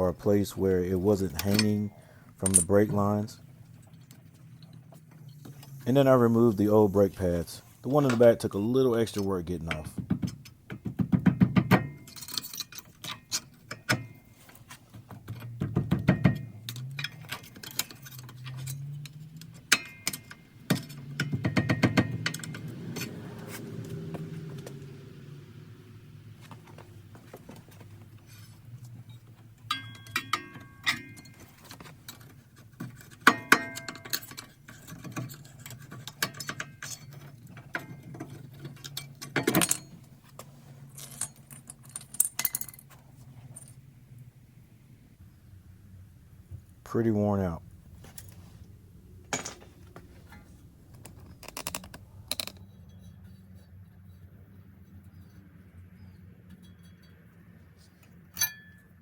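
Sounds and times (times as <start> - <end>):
metal tools clinking and scraping: 1.0 - 8.4, 11.8 - 23.9, 26.5 - 43.8, 47.9 - 48.7, 49.3 - 54.2, 55.0 - 59.0
ringing metal chinks: 15.3 - 22.7, 28.3 - 32.2, 33.0 - 40.0, 56.5 - 57.4, 58.3 - 59.0.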